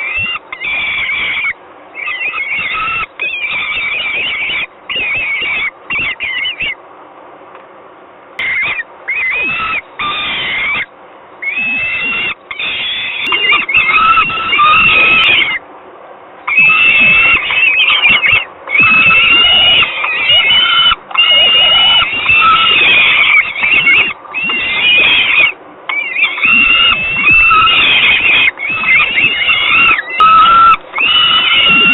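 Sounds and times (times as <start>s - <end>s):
falcons screaming calls: 0.0s - 6.8s, 8.4s - 15.6s, 16.4s - 31.9s.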